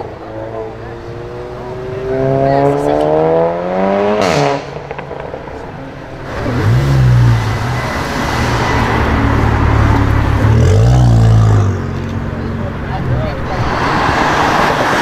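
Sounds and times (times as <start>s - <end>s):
car engine accelerating hard: 0.0s - 15.0s
car revving and pulling away: 0.0s - 15.0s.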